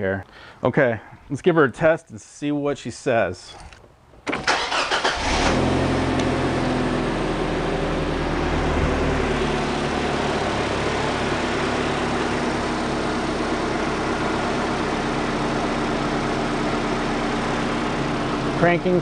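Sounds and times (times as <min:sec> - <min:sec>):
car engine idling: 0:04.5 - 0:19.0.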